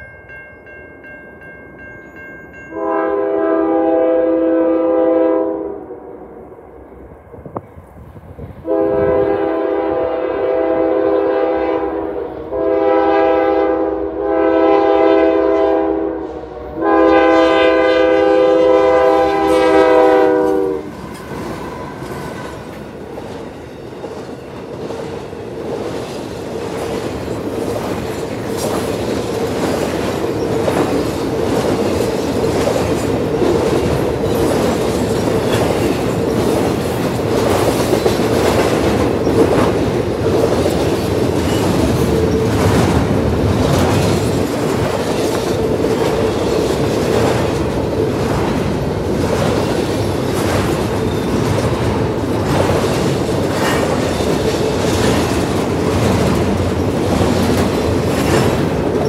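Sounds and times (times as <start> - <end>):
locomotive air horn blasts: 2.7 - 6.4, 8.6 - 21.0
train wheels clattering over rail joints: 21.0 - 59.0.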